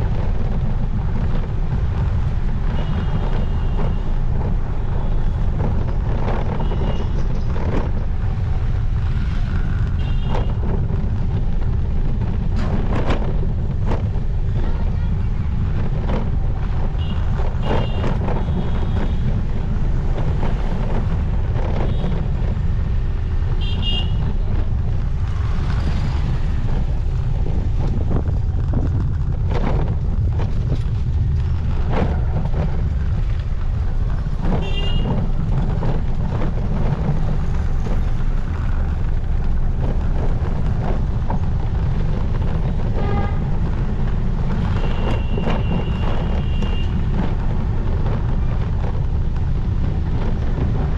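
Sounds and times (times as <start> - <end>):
wind and road noise: 0.0 - 50.9
vehicle horns beeping: 23.6 - 24.3, 34.6 - 35.2, 44.7 - 47.0.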